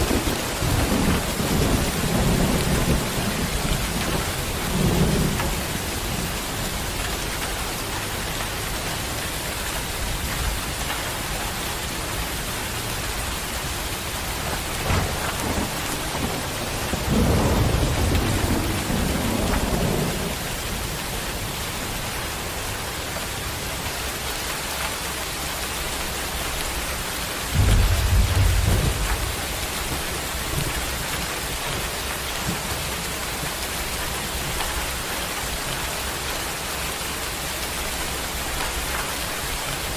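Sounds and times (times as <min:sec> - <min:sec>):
heavy rain pouring: 0:00.0 - 0:39.9
low rumbles: 0:27.4 - 0:33.1.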